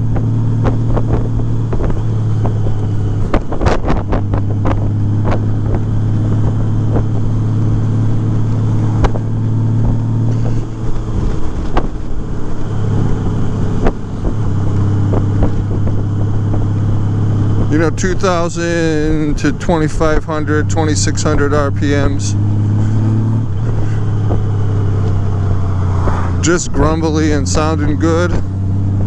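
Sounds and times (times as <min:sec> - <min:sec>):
motorcycle engine cruising: 0:00.0 - 0:29.0
wind buffeting microphone: 0:00.0 - 0:29.0.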